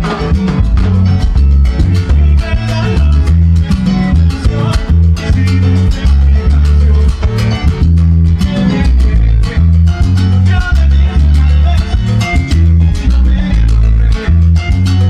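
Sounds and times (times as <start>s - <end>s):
salsa band playing: 0.0s - 15.0s.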